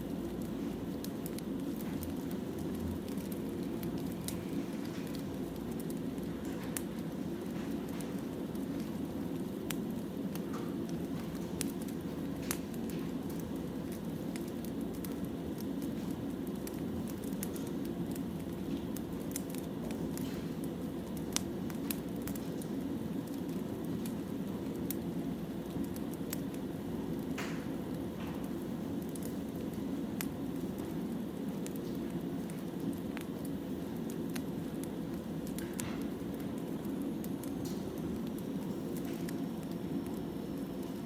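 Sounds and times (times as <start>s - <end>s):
crackles and pops of burning logs: 0.0s - 41.0s.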